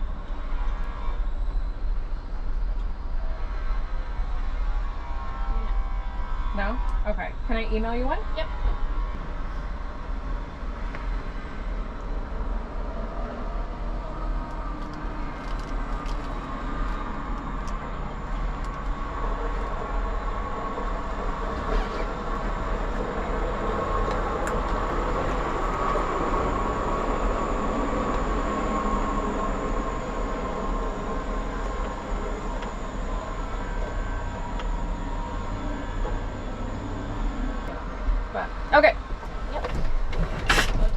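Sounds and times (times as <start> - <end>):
faint engine whine: 0.0 - 40.9
diesel engine running: 9.1 - 40.9.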